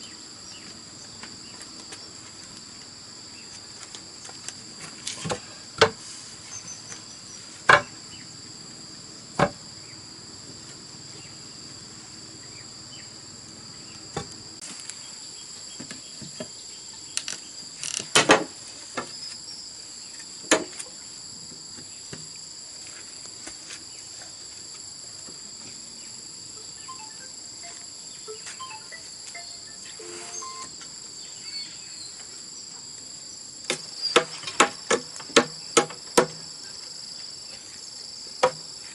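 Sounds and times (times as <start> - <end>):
insects chirring: 0.0 - 38.9
knocks on bamboo: 7.7 - 8.0, 9.4 - 9.6, 20.5 - 20.8, 33.7 - 36.4, 38.4 - 38.7.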